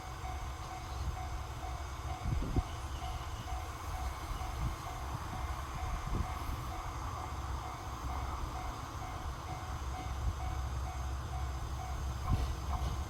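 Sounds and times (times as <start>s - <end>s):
railcar engine and wheel rumble: 0.0s - 13.0s.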